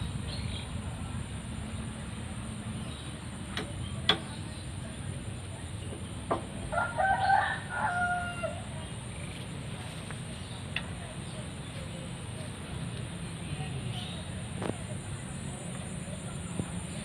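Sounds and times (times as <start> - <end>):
rooster crowing: 6.7 - 8.7.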